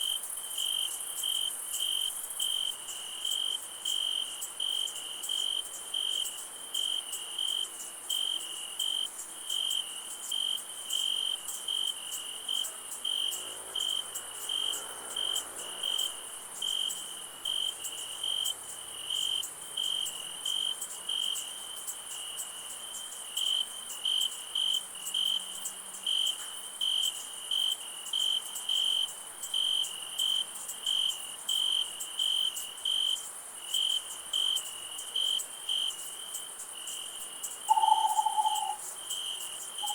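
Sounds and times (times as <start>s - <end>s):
crickets chirping: 0.0s - 39.9s
high shrill insect trill: 35.8s - 39.9s.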